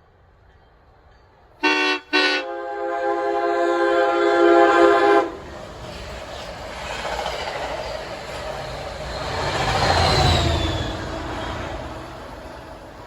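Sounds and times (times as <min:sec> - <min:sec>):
train wheels rumbling on track: 0:00.0 - 0:13.0
train horn blast: 0:01.6 - 0:05.5.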